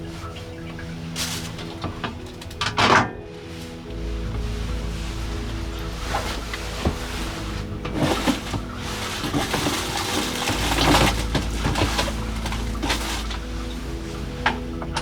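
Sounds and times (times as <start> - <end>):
background music: 0.0 - 15.0
objects knocking and clattering: 4.3 - 15.0.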